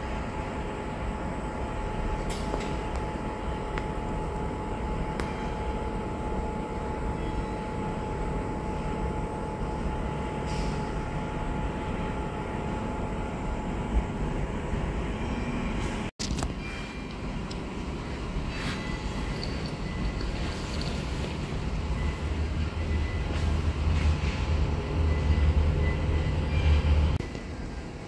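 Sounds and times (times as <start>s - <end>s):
train rumbling: 0.0s - 28.0s
faint steady whine: 16.6s - 28.0s.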